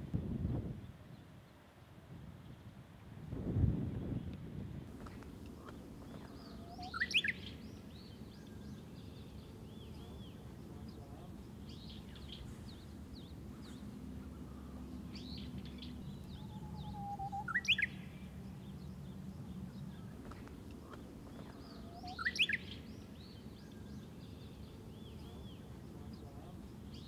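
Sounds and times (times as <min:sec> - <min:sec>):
low steady rumble: 0:02.9 - 0:27.0
birds chirping and singing: 0:05.6 - 0:27.0.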